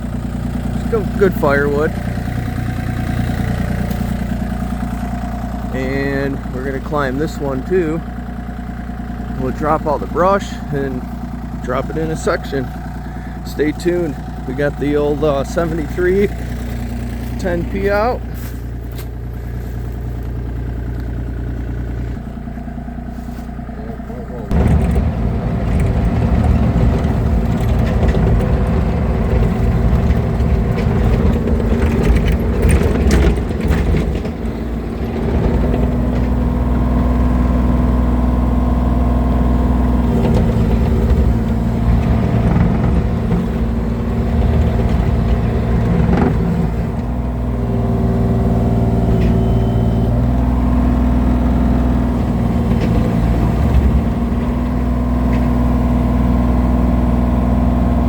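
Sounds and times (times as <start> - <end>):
heavy equipment diesel engine: 0.0 - 58.0
clattering: 24.5 - 36.6.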